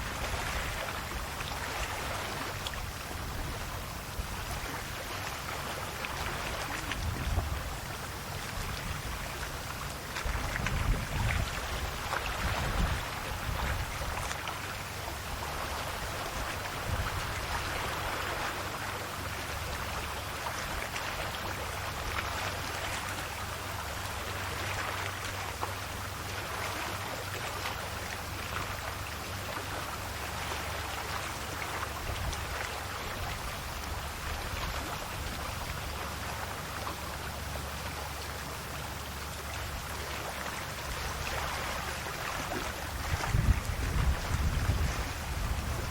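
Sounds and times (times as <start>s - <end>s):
steady low rumble: 0.0s - 18.4s, 27.9s - 45.9s
sea waves lapping on shore: 0.0s - 45.9s.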